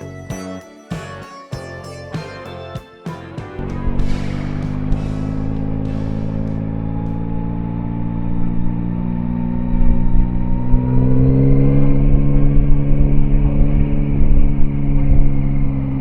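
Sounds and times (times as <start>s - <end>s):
motorcycle engine under way: 3.6s - 16.0s.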